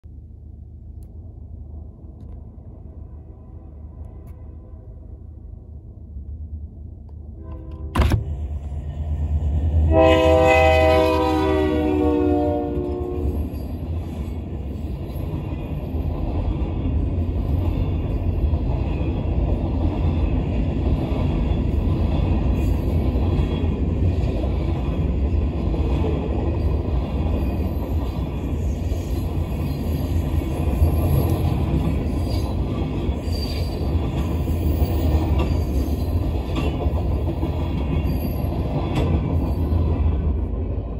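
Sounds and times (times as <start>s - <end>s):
locomotive air horn: 7.3s - 8.1s, 9.8s - 13.4s
freight cars rumbling and clattering: 13.3s - 40.9s.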